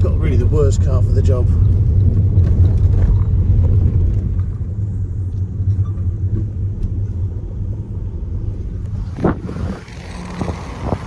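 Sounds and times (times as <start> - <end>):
people talking: 0.0 - 1.6
car engine and road rumble: 0.0 - 11.0.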